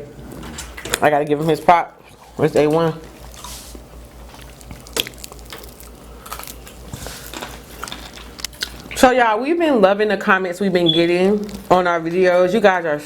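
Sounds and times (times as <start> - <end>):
chewing and biting crab: 2.0 - 9.0
shell cracking: 4.2 - 9.0.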